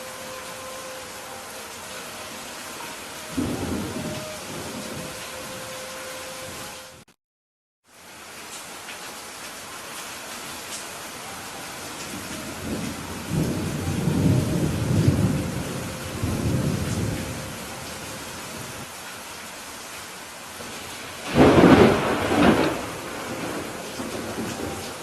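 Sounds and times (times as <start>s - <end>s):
steady rain: 0.0s - 7.1s, 7.8s - 25.0s
rolling thunder rumble: 3.3s - 5.7s, 12.0s - 18.9s, 20.7s - 25.0s
thunderclap: 21.2s - 25.0s.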